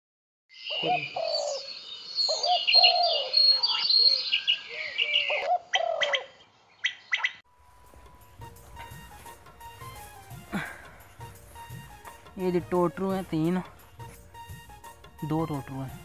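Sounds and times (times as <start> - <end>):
birds chirping and whistling: 0.5 - 7.4
lower bird calls: 0.5 - 7.4.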